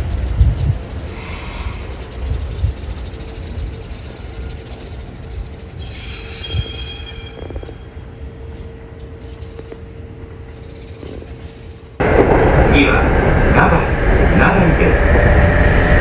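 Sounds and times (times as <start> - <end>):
electric train rumbling: 0.0 - 16.0
high-pitched wheel squeal: 1.1 - 8.9.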